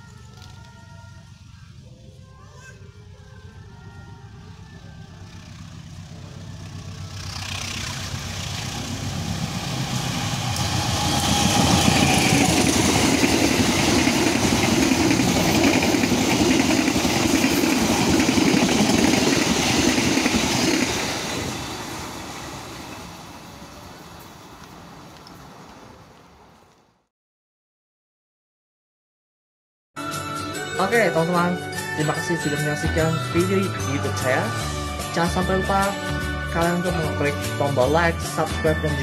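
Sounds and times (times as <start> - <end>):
train passing at speed: 0.0 - 26.7.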